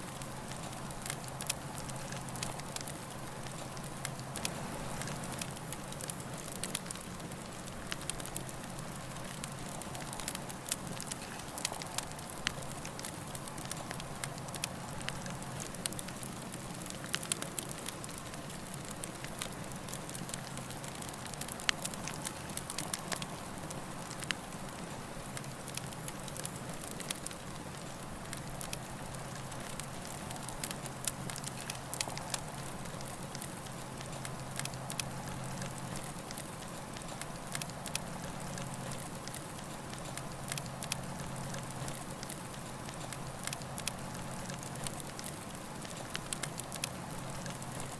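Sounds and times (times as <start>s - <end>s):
campfire crackling and popping: 0.0s - 47.9s
low steady hum: 0.0s - 47.9s.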